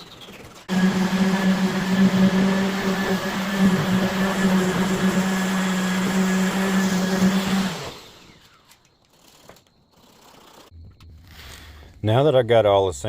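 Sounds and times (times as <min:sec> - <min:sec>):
power sander on wood: 0:00.7 - 0:08.6.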